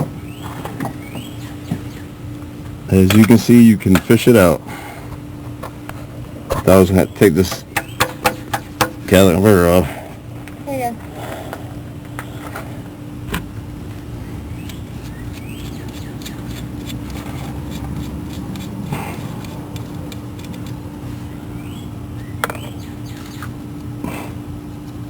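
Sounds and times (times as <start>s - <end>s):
low mechanical hum: 0.0s - 25.0s
clicks and knocks of handled parts: 14.6s - 20.8s.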